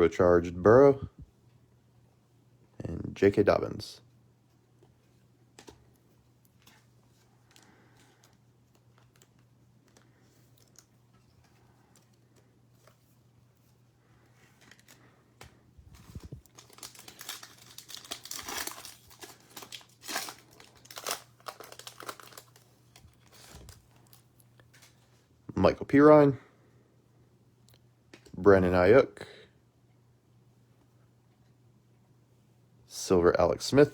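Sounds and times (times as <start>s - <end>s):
card pack wrapper tearing: 16.0s - 24.9s.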